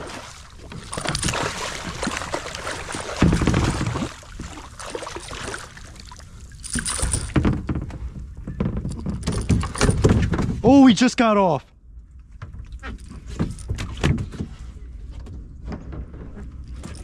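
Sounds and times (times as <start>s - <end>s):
water splashing: 0.0s - 7.4s
rustling: 0.6s - 8.1s.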